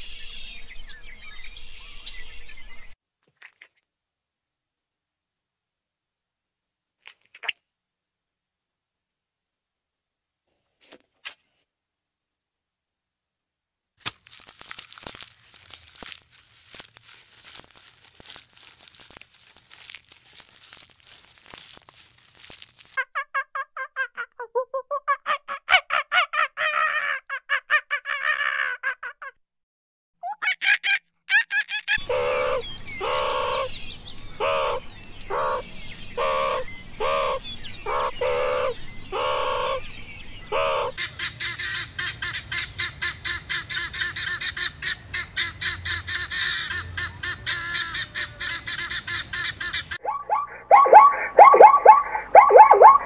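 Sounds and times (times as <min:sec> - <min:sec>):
high chirps and twitters: 0:50.0 - 0:53.0
high ticking chirps: 0:50.0 - 0:53.0.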